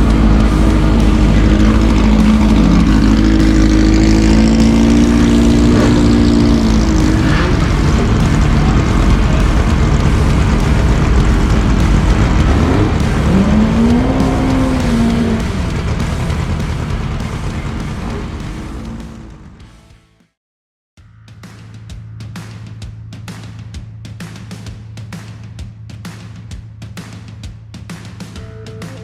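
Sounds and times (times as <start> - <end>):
drag car engines accelerating: 0.0 - 19.7
second engine rising and falling: 0.0 - 19.8.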